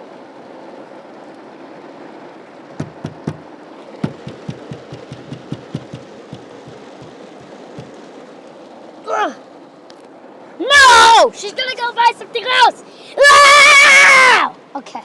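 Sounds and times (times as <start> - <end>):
rain heard inside car: 0.0 - 15.0
sharp knocks: 2.8 - 8.0.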